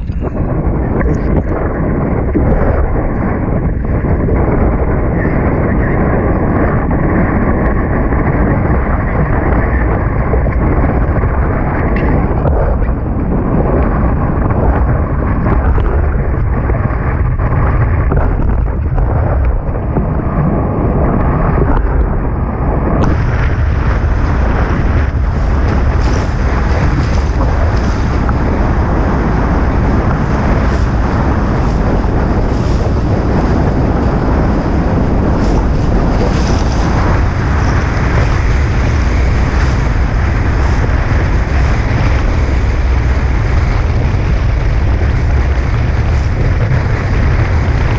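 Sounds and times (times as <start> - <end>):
wind buffeting microphone: 0.0 - 47.9
water rushing: 13.8 - 47.9.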